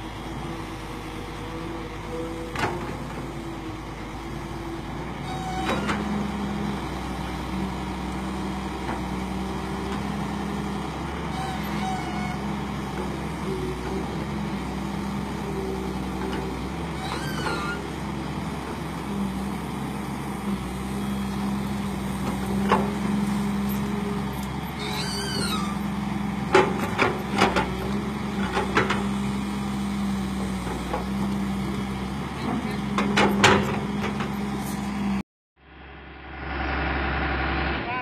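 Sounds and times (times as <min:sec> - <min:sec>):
excavator diesel engine running: 0:00.0 - 0:35.2
machine knocks and clanks: 0:32.5 - 0:34.3.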